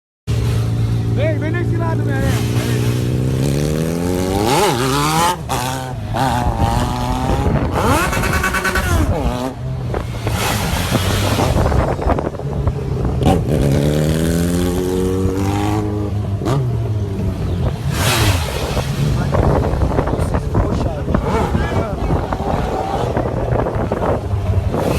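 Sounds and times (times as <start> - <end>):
engine revving: 0.3 - 24.9.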